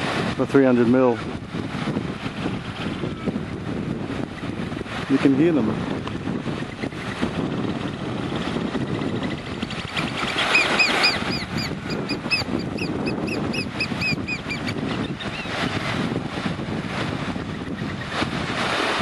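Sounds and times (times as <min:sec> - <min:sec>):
surf: 0:00.0 - 0:19.0
wind: 0:00.0 - 0:19.0
birds piping: 0:09.9 - 0:15.6.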